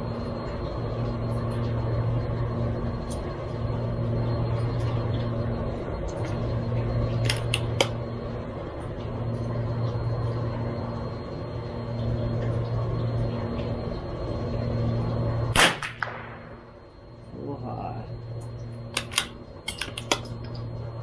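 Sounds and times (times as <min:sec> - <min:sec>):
low hum: 0:00.0 - 0:21.0
sharp clicks: 0:07.2 - 0:08.0, 0:18.9 - 0:20.6.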